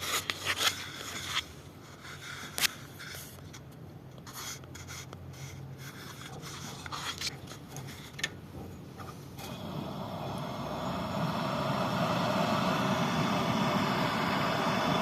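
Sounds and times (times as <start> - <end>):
scraping and rubbing on metal parts: 4.3 - 8.2
low hum: 9.4 - 15.0.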